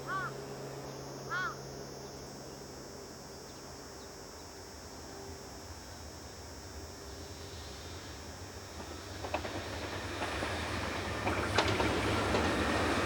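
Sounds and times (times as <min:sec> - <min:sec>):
crow cawing: 0:00.1 - 0:00.3, 0:01.3 - 0:01.6.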